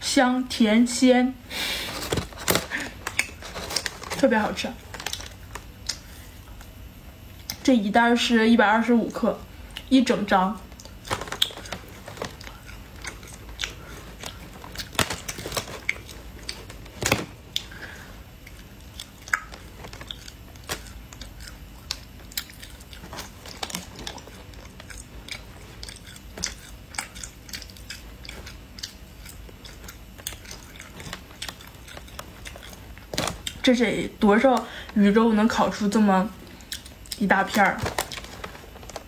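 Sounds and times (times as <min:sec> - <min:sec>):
dried fish tearing and crunching: 0:10.7 - 0:33.7.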